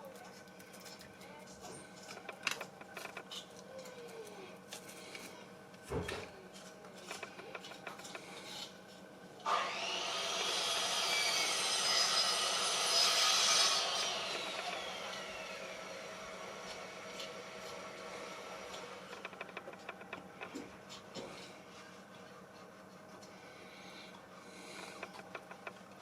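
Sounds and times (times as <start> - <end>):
tool rasping on glass: 23.8 - 26.0.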